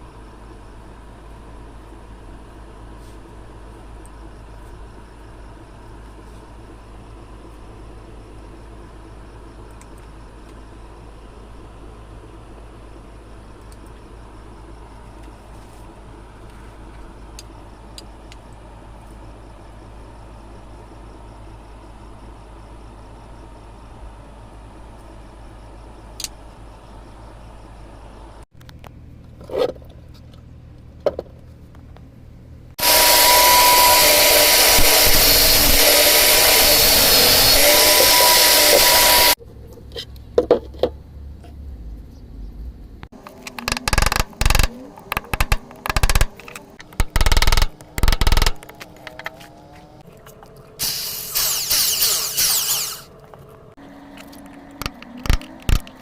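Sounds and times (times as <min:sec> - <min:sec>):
power tool whining: 0:32.8 - 0:39.4, 0:50.8 - 0:53.2.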